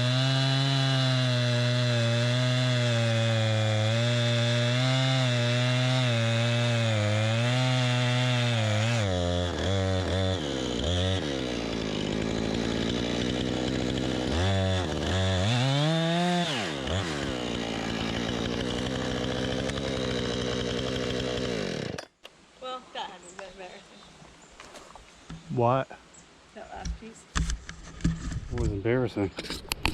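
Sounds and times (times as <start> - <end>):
chainsaw cutting wood: 0.0 - 22.2.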